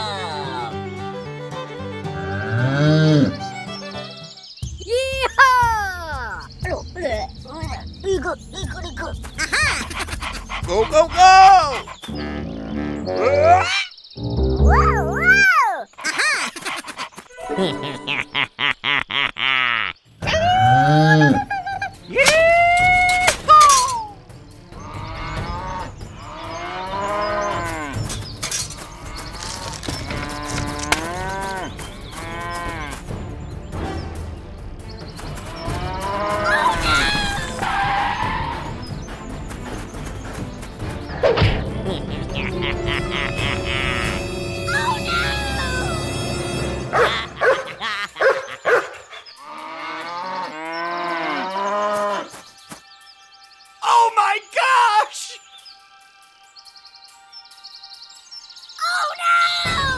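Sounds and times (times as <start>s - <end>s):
cattle mooing: 25.0s - 33.0s, 49.5s - 52.3s
dog barking: 46.9s - 49.0s.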